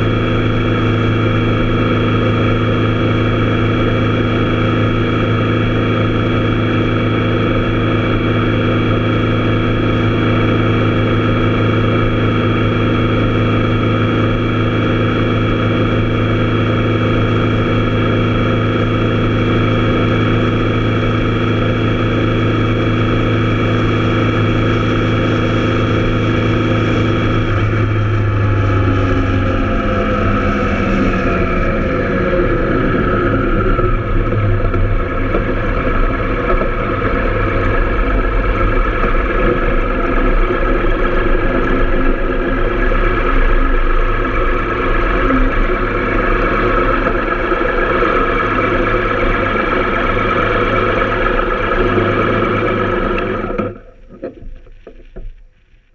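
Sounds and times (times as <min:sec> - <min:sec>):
motorcycle engine cruising: 0:00.0 - 0:55.3
road and wind noise: 0:00.0 - 0:55.9.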